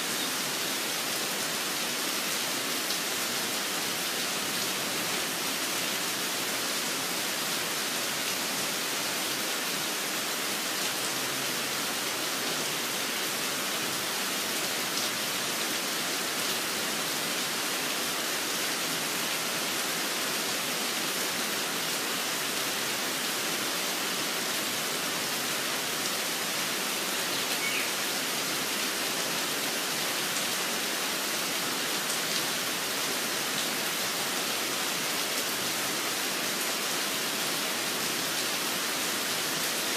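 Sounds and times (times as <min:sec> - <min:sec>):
steady rain falling: 0:00.0 - 0:39.9
short high bird chirp: 0:27.3 - 0:27.9.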